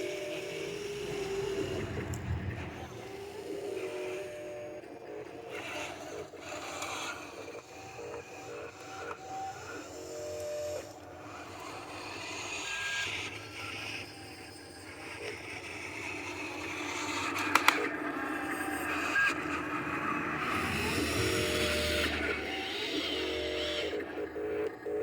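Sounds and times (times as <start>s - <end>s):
dump truck engine running: 0.3s - 3.6s, 20.4s - 24.3s.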